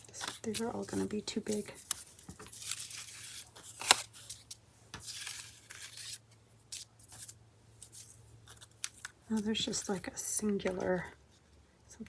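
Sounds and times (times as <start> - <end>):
paper rustling and sliding: 0.0 - 8.7.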